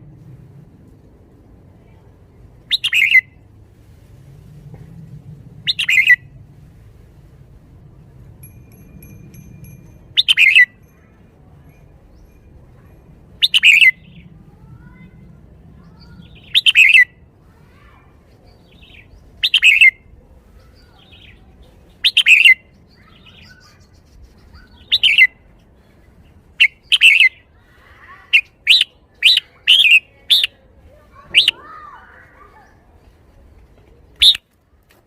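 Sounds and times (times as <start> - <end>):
bulbul singing chirped phrases: 2.6 - 3.4, 5.6 - 6.2, 10.1 - 10.8, 13.4 - 17.3, 18.2 - 25.5, 26.1 - 32.0, 34.2 - 34.4.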